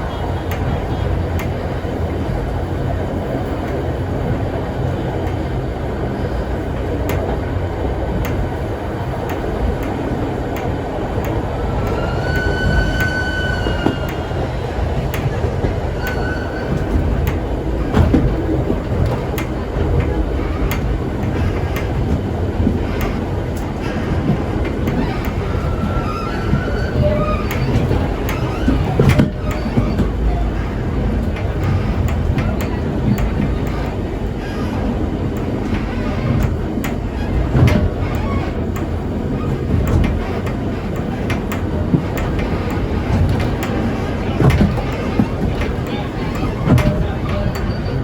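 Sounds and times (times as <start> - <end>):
rail-joint clicks: 0.0 - 48.0
train carriage rumbling: 0.0 - 48.0
wheels squealing: 9.3 - 48.0.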